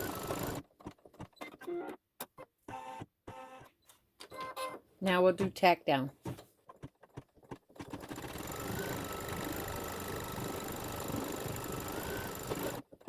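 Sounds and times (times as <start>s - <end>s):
embroidery machine stitching: 0.0s - 1.3s, 6.8s - 13.0s.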